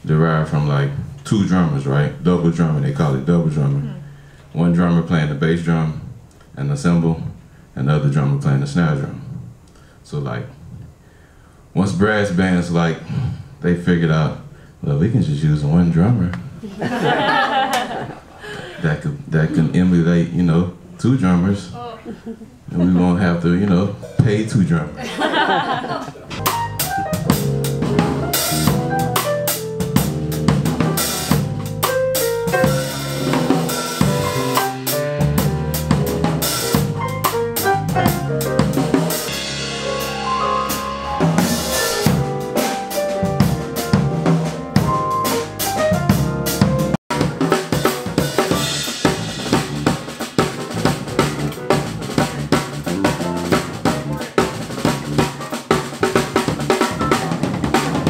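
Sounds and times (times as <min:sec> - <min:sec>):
drum kit fast groove: 0:25.3 - 0:58.0.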